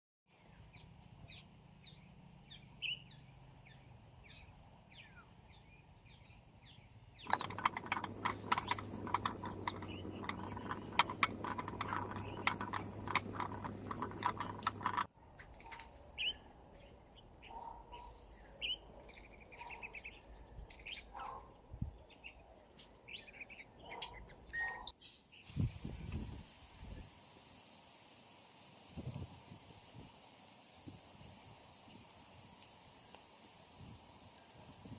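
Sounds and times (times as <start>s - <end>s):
dense crackling clicks: 7.3s - 15.1s.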